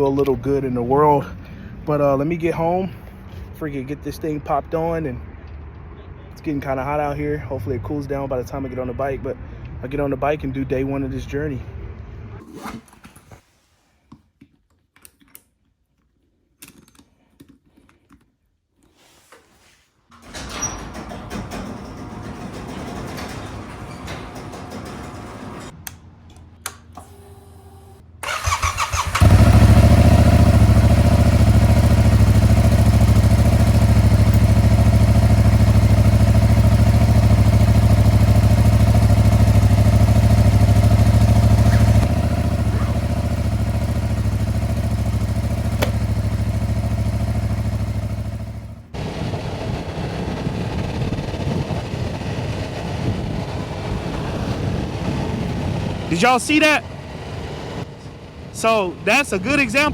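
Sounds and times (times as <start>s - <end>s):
starter cranking: 20.2s - 25.8s, 28.2s - 48.6s
motorcycle engine idling: 28.2s - 49.3s.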